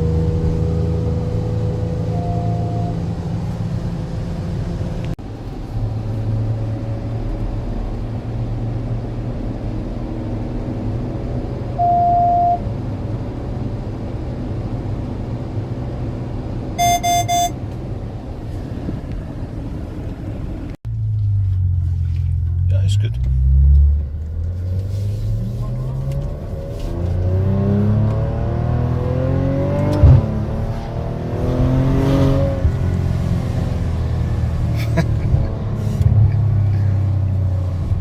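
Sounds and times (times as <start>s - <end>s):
car engine low hum: 0.0s - 38.0s
short beeps: 2.0s - 3.0s, 11.8s - 12.6s, 16.8s - 17.6s.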